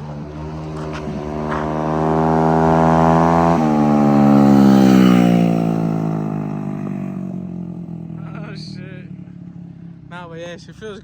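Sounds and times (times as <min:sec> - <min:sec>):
moped engine at high revs: 0:00.0 - 0:11.0.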